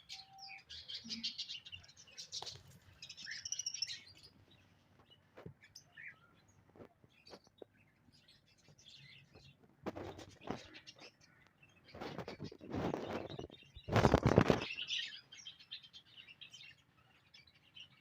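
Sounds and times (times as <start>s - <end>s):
small birds chirping: 0.0s - 18.0s
rustling: 11.9s - 15.0s.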